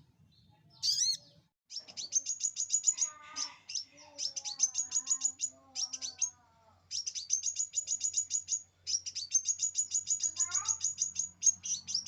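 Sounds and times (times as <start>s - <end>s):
sunbird chirping trills: 0.3s - 12.0s.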